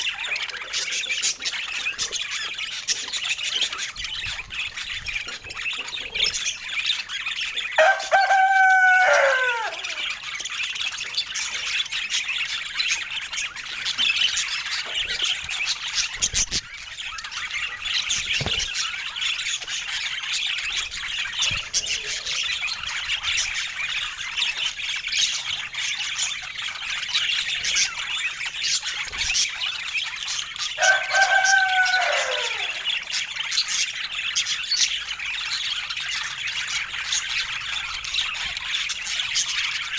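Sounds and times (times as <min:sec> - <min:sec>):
budgerigars chattering: 0:00.0 - 0:39.9
rooster crowing: 0:07.8 - 0:10.2, 0:30.8 - 0:33.1.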